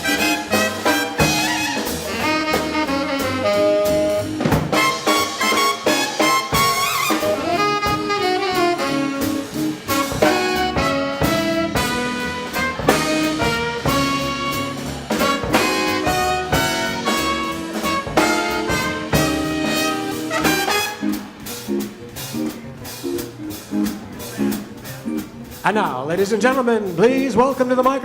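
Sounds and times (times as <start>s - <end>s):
saxophone and brass horns: 0.0s - 25.6s
drum kit: 0.0s - 28.0s
swing band playing: 0.0s - 28.0s.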